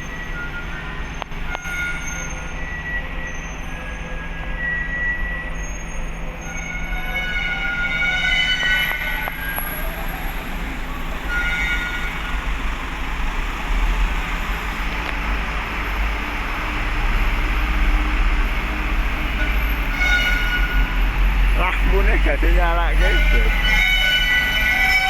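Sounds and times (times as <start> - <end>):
short high squeals: 0.0 - 12.4, 22.9 - 25.0
heavy vehicle engines rumbling: 0.0 - 25.0.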